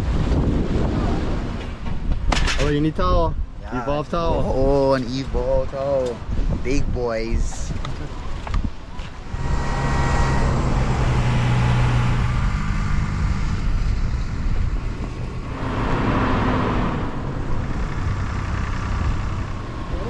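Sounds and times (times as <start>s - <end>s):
road noise: 0.0s - 20.0s
vehicle engine running: 9.3s - 20.0s.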